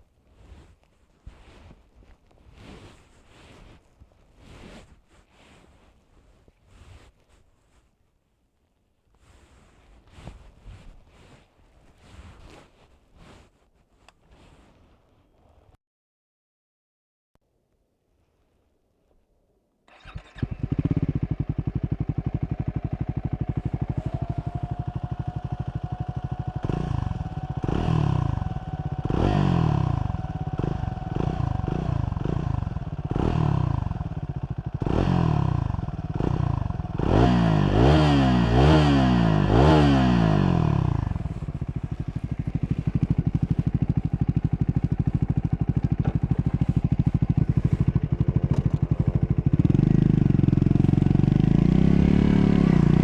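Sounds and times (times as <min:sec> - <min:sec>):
motorcycle engine revving: 0:19.9 - 0:53.0.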